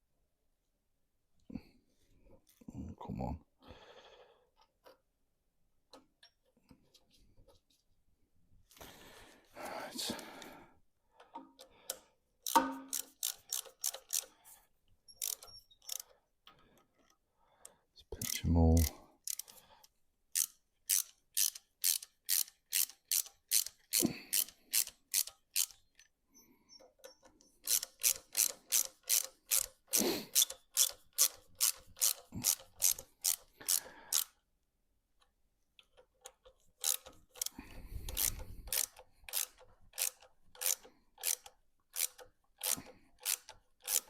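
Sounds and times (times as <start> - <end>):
ratchet wrench clicking: 11.9 - 14.4, 15.2 - 16.1, 18.2 - 19.6, 20.3 - 26.1, 27.6 - 34.4, 35.9 - 44.0.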